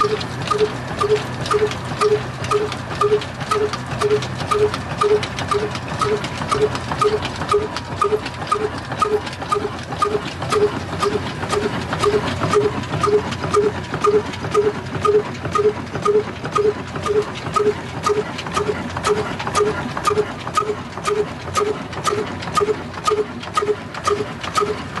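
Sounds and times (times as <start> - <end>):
diesel engine knocking: 0.0 - 25.0.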